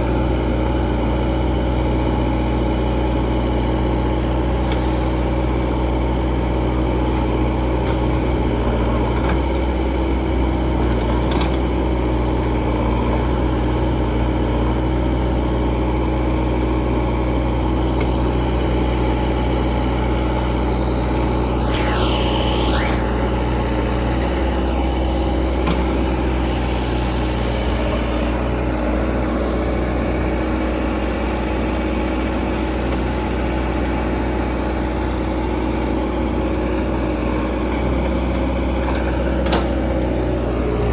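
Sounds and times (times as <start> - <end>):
high whine falling and rising: 20.9 - 27.8.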